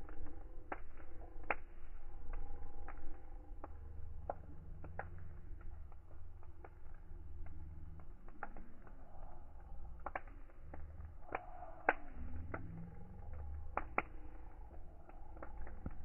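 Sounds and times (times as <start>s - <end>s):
low steady rumble: 0.0s - 16.0s
wood fire crackling: 0.0s - 16.0s.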